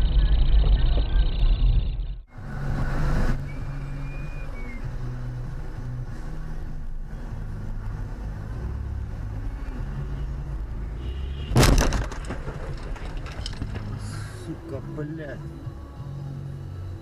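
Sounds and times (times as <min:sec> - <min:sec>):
car driving drone: 0:00.0 - 0:17.0
car collision crash: 0:11.5 - 0:14.1.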